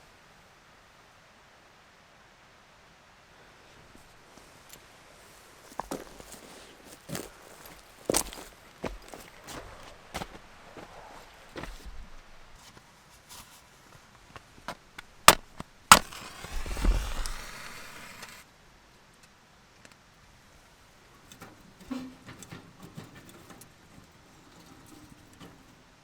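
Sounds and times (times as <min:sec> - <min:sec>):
wood cracking and splintering: 0:15.3 - 0:18.4.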